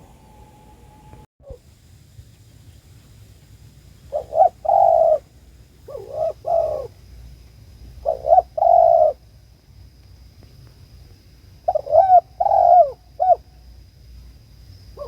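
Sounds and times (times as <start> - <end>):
dove cooing: 4.1 - 5.3, 5.9 - 6.9, 8.0 - 9.2, 11.7 - 13.4.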